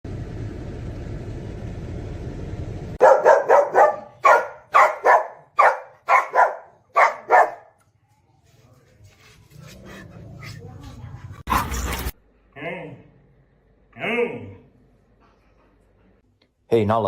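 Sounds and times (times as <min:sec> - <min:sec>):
dog barking: 0:03.0 - 0:07.8.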